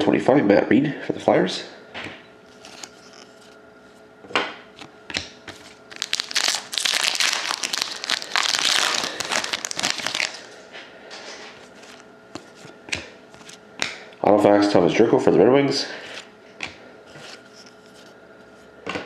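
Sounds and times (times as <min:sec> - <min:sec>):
foil wrapper crinkling: 0:05.6 - 0:10.6.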